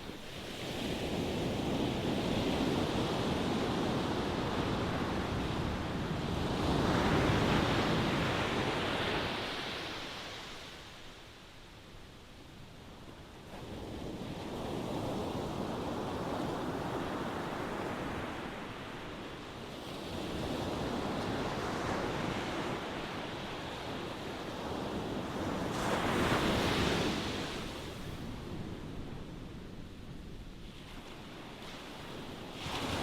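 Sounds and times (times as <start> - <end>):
ocean waves surging onto shore: 15.3 - 29.4.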